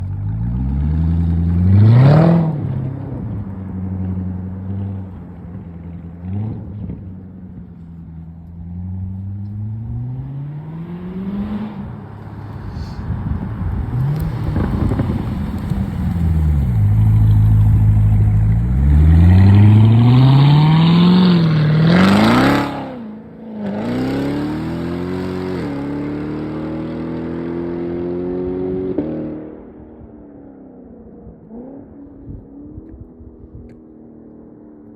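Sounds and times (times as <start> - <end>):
car engine revving: 8.7 - 29.4.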